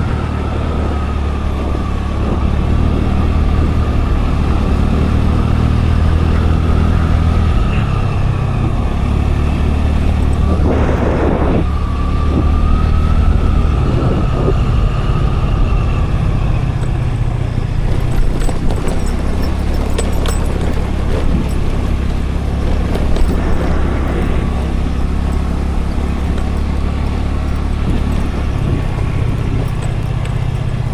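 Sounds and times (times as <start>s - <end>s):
motor scooter engine running: 0.0s - 30.9s
wind and road rumble: 0.0s - 30.9s
faint whine: 6.3s - 30.9s.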